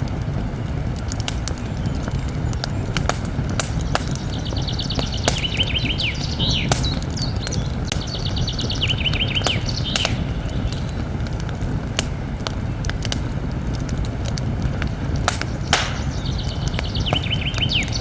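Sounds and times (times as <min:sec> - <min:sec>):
campfire crackling and popping: 0:00.0 - 0:18.0
songbird trilling: 0:03.8 - 0:11.0, 0:15.4 - 0:18.0
low rumble: 0:10.2 - 0:18.0.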